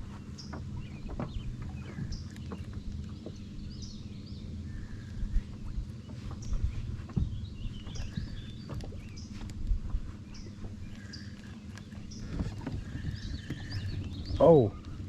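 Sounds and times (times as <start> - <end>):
small birds chirping: 0.0 - 15.0
wind rumbling on microphone: 0.0 - 15.0
dull knocks: 0.5 - 3.5, 5.6 - 10.0.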